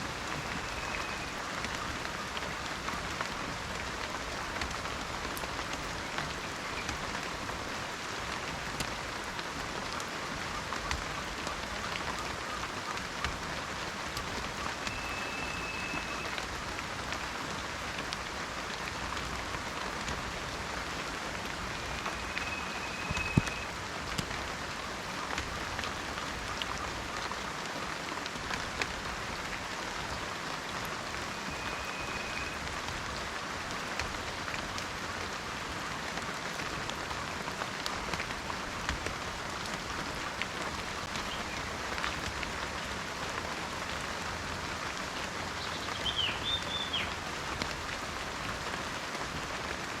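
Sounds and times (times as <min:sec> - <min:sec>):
rain falling in a forest: 0:00.0 - 0:50.0
faint high whistle: 0:14.9 - 0:16.4, 0:21.8 - 0:23.7, 0:31.3 - 0:32.6.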